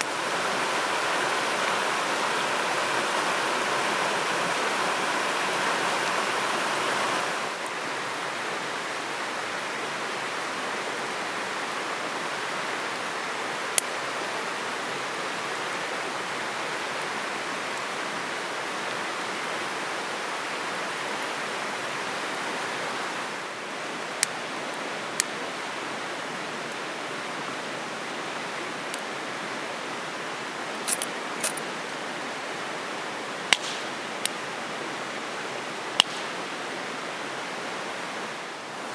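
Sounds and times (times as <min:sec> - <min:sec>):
stream rushing: 0:00.0 - 0:38.9.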